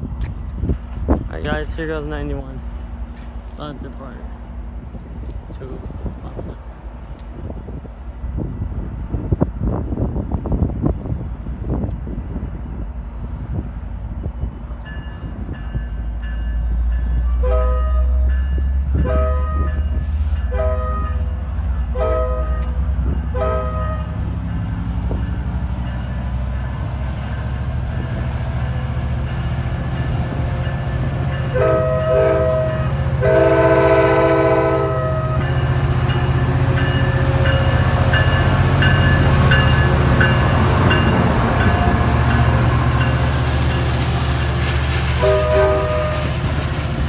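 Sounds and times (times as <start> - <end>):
diesel train rumbling past: 0.0 - 47.0
wheel and rail noise: 0.0 - 47.0
train air horn blasts: 17.4 - 18.3, 19.0 - 21.3, 21.9 - 24.2, 31.5 - 35.4, 45.2 - 46.4.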